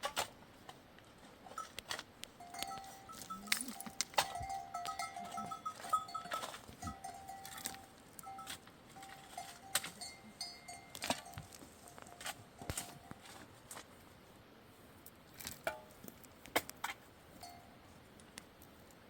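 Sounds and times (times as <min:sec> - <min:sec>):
livestock bells clanking: 0:02.4 - 0:13.3, 0:17.4 - 0:17.8.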